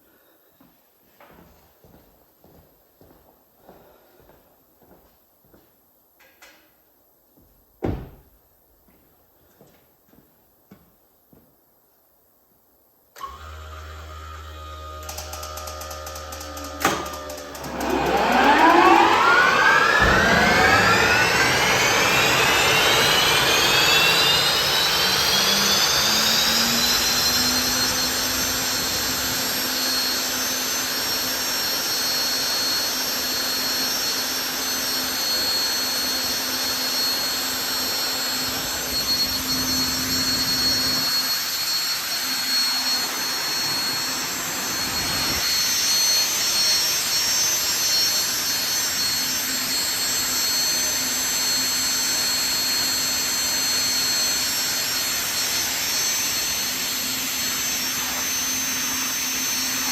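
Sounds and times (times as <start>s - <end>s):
turbine engine whine: 13.3s - 59.9s
turbine rushing noise: 17.4s - 32.8s, 35.2s - 59.9s.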